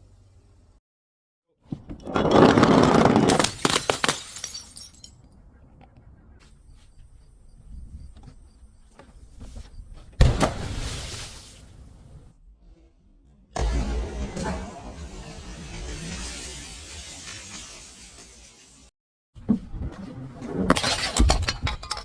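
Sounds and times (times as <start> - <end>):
glass bottles shattering: 2.2 - 5.2.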